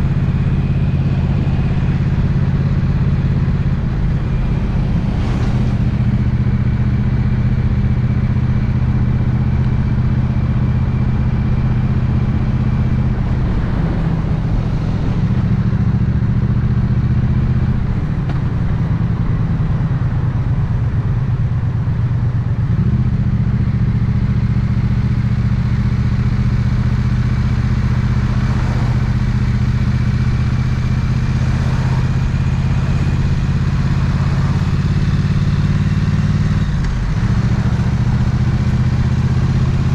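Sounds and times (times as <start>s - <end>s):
motorcycle engine idling: 15.7s - 39.9s.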